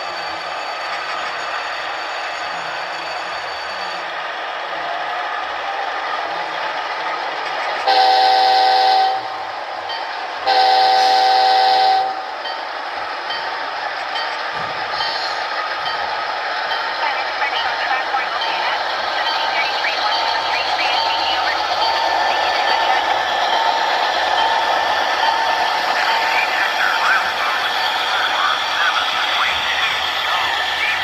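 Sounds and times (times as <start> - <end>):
model locomotive running: 0.0 - 31.0
model locomotive horn blasts: 7.9 - 9.3, 10.5 - 12.2.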